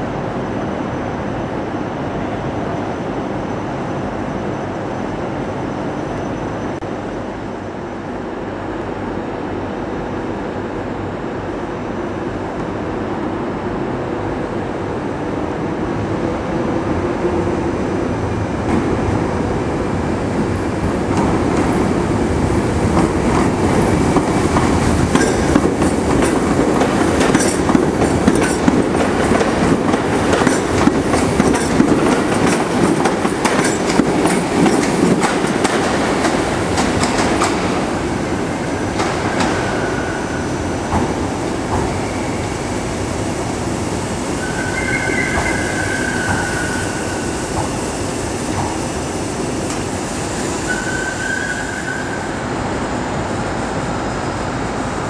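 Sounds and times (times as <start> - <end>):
train motors and wheels rumbling: 0.0 - 55.0
wheels clattering over rail joints: 23.0 - 37.7.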